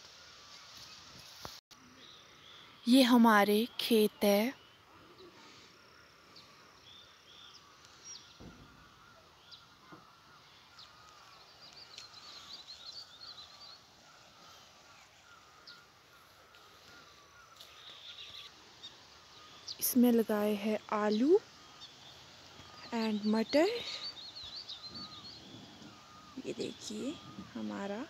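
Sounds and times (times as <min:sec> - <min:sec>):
faint rural outdoor ambience: 0:00.0 - 0:28.0
bird chirps and twittering: 0:06.4 - 0:28.0.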